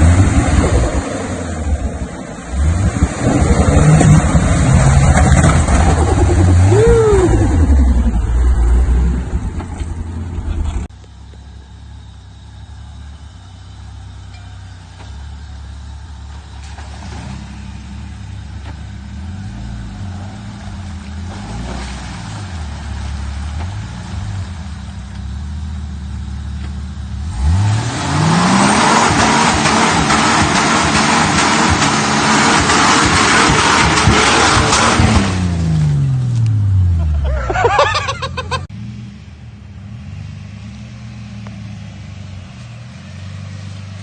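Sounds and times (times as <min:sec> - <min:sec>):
engine revving: 0:00.0 - 0:10.9, 0:26.6 - 0:44.0.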